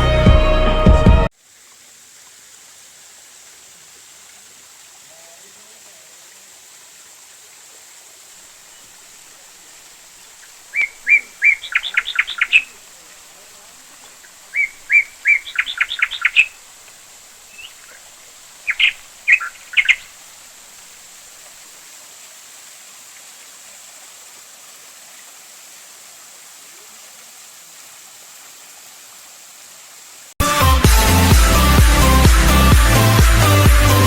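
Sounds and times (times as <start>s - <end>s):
electronic dance music: 0.0s - 1.3s, 30.4s - 34.0s
steady background hiss: 1.3s - 30.3s
bird chirping: 10.2s - 12.8s, 14.2s - 16.6s, 17.5s - 18.0s, 18.6s - 20.1s.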